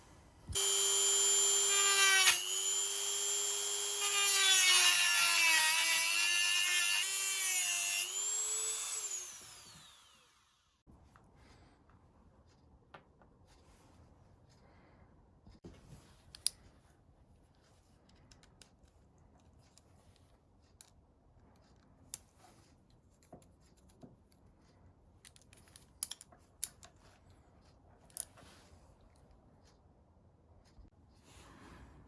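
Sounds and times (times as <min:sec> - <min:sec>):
small tools clicking: 0:25.2 - 0:27.0.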